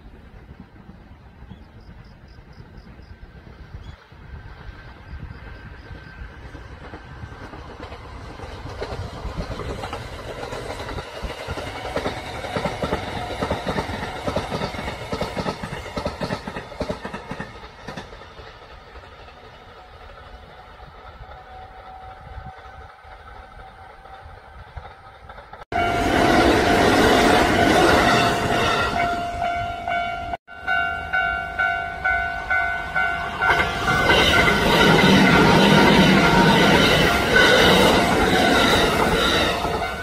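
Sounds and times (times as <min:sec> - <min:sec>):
train rumble: 0:00.0 - 0:40.0
train wheels clacking over rail joints: 0:05.9 - 0:25.6, 0:33.4 - 0:40.0.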